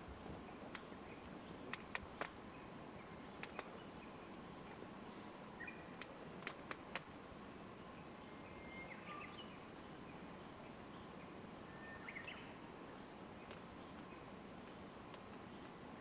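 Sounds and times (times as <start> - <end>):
faint outdoor hiss: 0.0 - 16.0
birds chirping: 0.7 - 6.8, 8.0 - 12.6.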